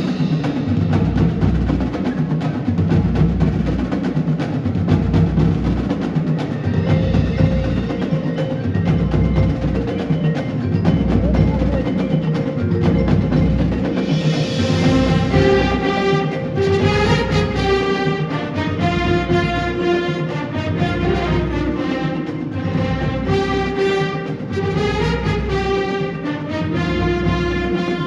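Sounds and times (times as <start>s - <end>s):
pulsing low drum: 0.0s - 6.2s, 10.7s - 28.0s
quick sharp percussion strikes: 0.0s - 28.0s
mallet instrument tones: 5.0s - 28.0s.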